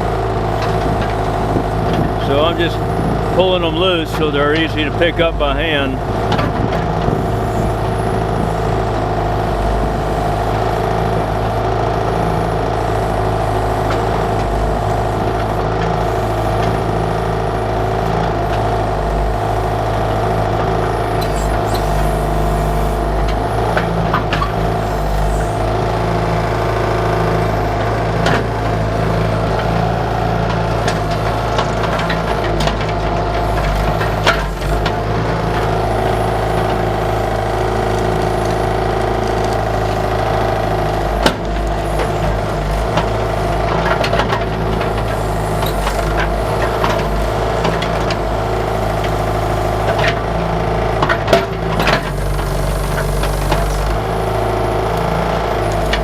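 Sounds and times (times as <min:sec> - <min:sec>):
diesel engine running: 0:00.0 - 0:56.0
excavator bucket clanks and knocks: 0:06.2 - 0:07.3, 0:29.6 - 0:35.7, 0:41.2 - 0:48.2, 0:49.8 - 0:54.0.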